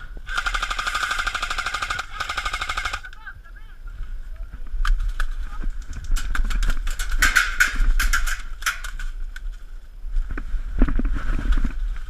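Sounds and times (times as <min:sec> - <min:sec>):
airsoft gunfire clicks and cracks: 0:00.3 - 0:03.2, 0:04.8 - 0:09.5.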